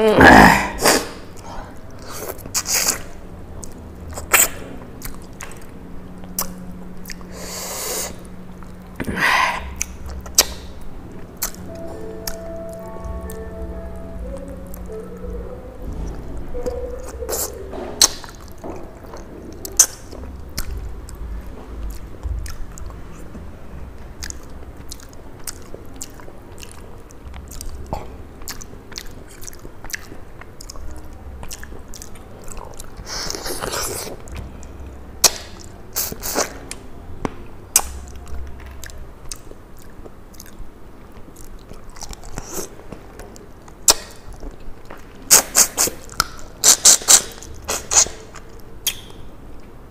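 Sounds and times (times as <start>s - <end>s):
chewing and biting food: 1.3s - 8.9s, 9.6s - 12.4s, 16.6s - 23.4s, 24.0s - 36.8s, 37.7s - 49.7s
wet mouth clicks and smacks: 43.9s - 49.2s.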